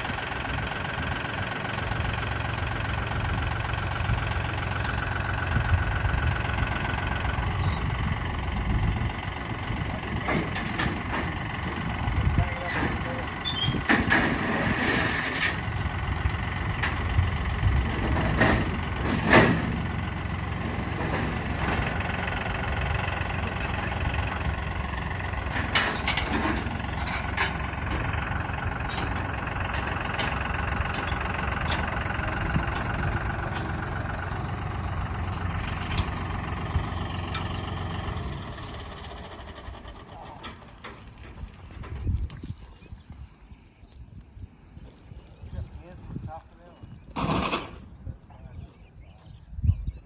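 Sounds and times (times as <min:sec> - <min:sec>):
vehicle engine idling: 0:00.0 - 0:42.2
metallic knocks and clanks: 0:09.2 - 0:15.7, 0:17.8 - 0:43.4, 0:47.0 - 0:47.9.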